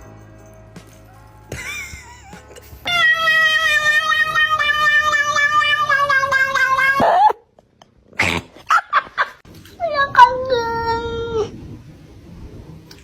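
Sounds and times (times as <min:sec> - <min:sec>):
cat yowling: 0:02.9 - 0:07.4.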